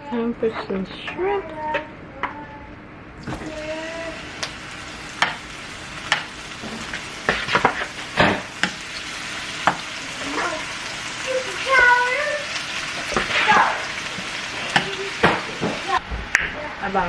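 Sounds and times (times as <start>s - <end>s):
shrimp sizzling in a frying pan: 3.2s - 16.0s
utensil scraping a pan: 6.1s - 8.8s.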